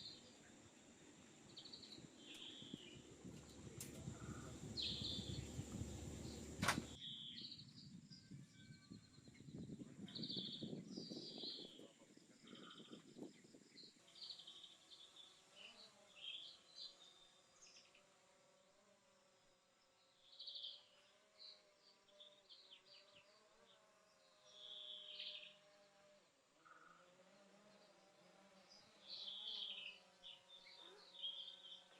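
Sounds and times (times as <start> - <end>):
faint insect buzz: 0.0 - 7.0, 9.8 - 31.9
birds chirping: 0.0 - 17.9.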